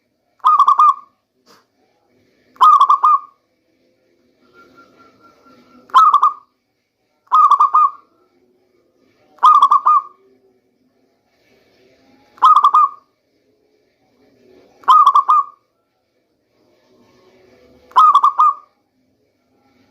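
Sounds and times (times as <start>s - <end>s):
dove cooing: 0.4s - 1.1s, 2.6s - 3.4s, 5.2s - 6.4s, 7.3s - 8.1s, 9.4s - 10.2s, 12.4s - 13.0s, 14.8s - 15.6s, 17.9s - 18.7s.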